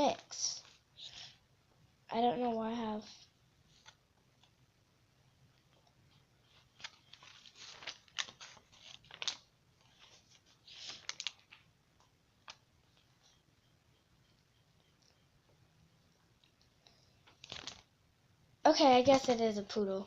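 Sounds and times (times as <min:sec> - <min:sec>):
book pages flipping: 0:03.7 - 0:04.6, 0:05.6 - 0:13.4, 0:16.4 - 0:17.9, 0:19.0 - 0:19.5.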